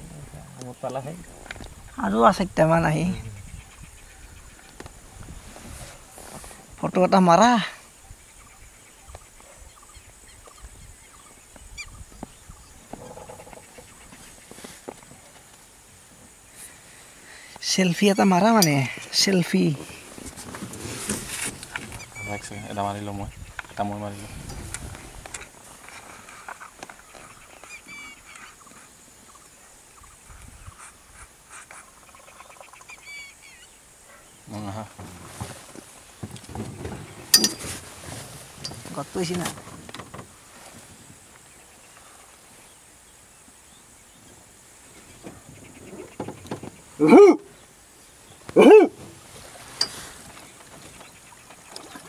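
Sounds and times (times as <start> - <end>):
wetland ambience: 0.0 - 52.0
bird chirping: 7.9 - 14.5, 21.7 - 24.6, 26.6 - 30.9, 31.7 - 34.5
high bird chirps: 22.0 - 22.8, 27.6 - 28.6, 32.1 - 33.8.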